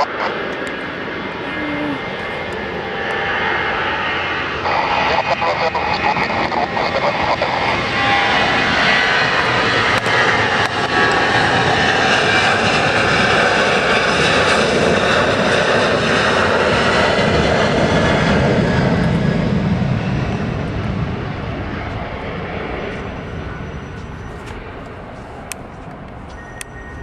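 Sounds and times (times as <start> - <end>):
jet engine roar at takeoff: 0.0 - 27.0.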